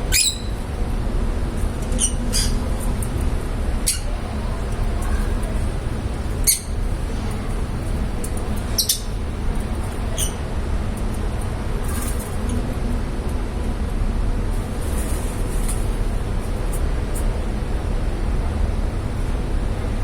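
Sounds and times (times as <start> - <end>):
lovebirds chirping: 0.0 - 0.6, 8.6 - 9.2
steady low rumble: 0.0 - 11.8.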